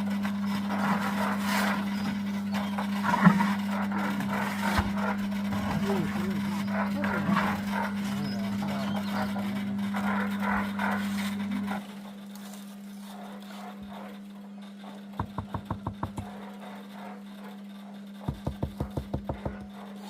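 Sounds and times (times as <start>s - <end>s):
steady low hum: 0.0s - 20.0s
rapid sharp knocks: 15.2s - 16.3s, 18.2s - 19.7s.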